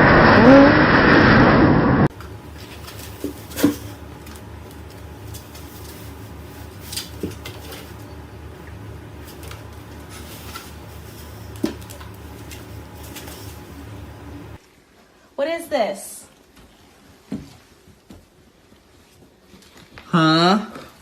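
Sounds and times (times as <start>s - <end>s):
low hum: 0.0s - 14.6s.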